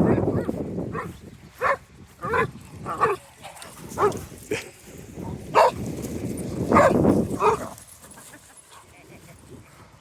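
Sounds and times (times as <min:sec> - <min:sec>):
dogs barking: 0:00.0 - 0:03.2, 0:04.0 - 0:04.2, 0:05.2 - 0:05.8, 0:06.7 - 0:07.8.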